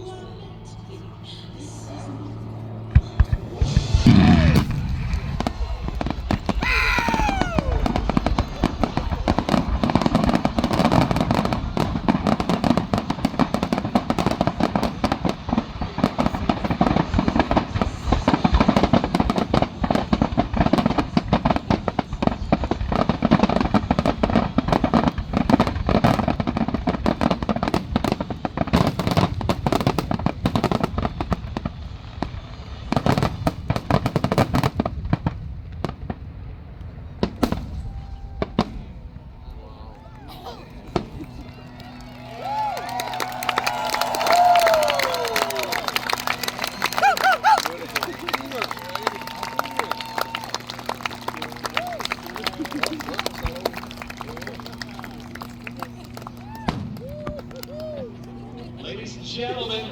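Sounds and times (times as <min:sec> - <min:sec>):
fireworks bursting and crackling: 0:03.0 - 0:39.0, 0:42.4 - 0:59.9
falling firework whistle: 0:06.6 - 0:08.2, 0:42.4 - 0:47.7, 0:48.7 - 0:52.4, 0:56.4 - 0:58.2.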